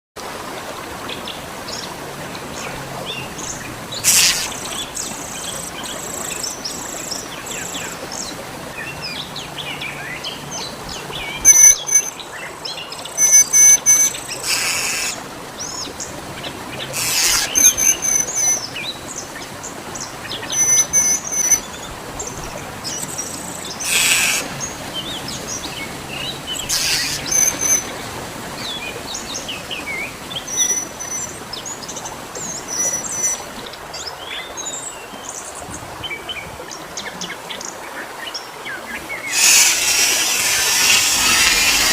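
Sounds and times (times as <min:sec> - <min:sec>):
small birds chirping: 0:03.1 - 0:08.3, 0:11.2 - 0:16.1, 0:16.8 - 0:19.3, 0:20.0 - 0:27.9, 0:39.2 - 0:41.9.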